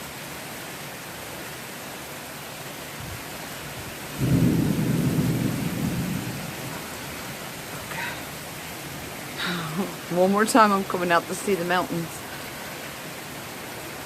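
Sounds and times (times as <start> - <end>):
heavy rain hissing: 0.0 - 14.0
thunder rumble: 4.2 - 8.4.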